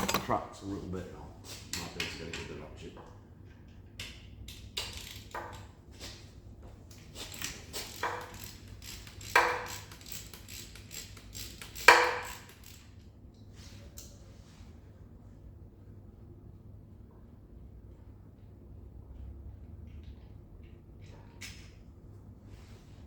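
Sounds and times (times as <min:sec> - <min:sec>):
hand ratchet clicking: 0:00.0 - 0:00.3
metal tools clinking: 0:00.0 - 0:00.3.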